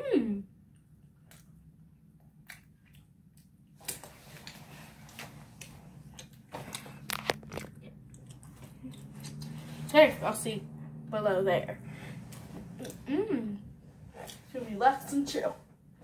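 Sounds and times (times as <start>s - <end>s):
chewing with mouth clicks: 2.2s - 9.9s, 12.2s - 13.1s.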